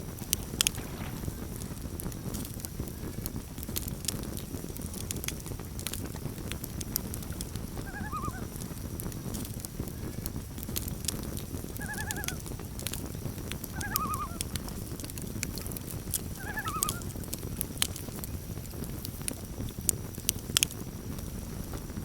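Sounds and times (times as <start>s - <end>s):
campfire crackling and popping: 0.0s - 22.0s
loon tremolo calls: 7.8s - 8.5s, 11.8s - 12.5s, 13.7s - 14.6s, 16.3s - 17.1s.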